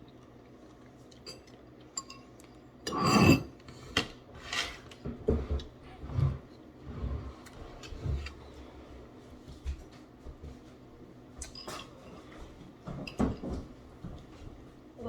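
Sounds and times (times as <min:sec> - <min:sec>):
spoons clinking against bowls: 0:01.2 - 0:03.5.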